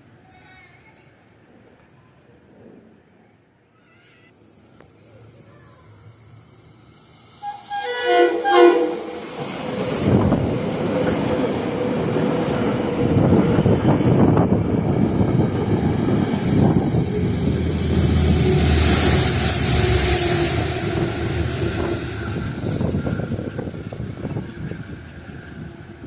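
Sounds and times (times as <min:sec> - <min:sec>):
train wheels clattering on rail: 0:09.2 - 0:26.0.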